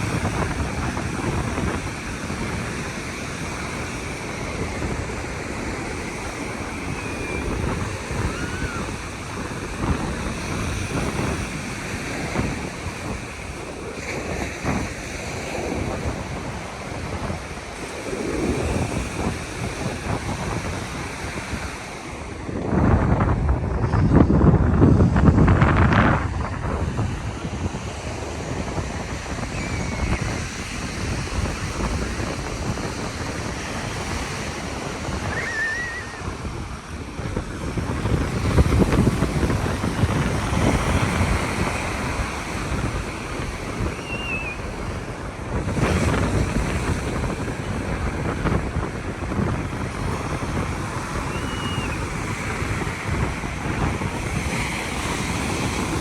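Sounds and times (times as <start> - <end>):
ocean surf breaking: 0.0 - 56.0
wind buffeting microphone: 0.0 - 56.0
faint high chirps: 44.0 - 44.6.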